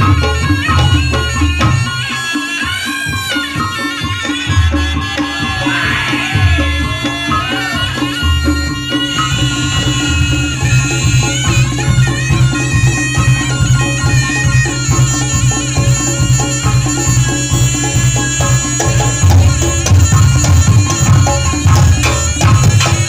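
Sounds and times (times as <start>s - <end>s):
hand drums: 0.0s - 23.0s
shawm melody: 0.0s - 23.0s
gong strokes: 5.5s - 23.0s.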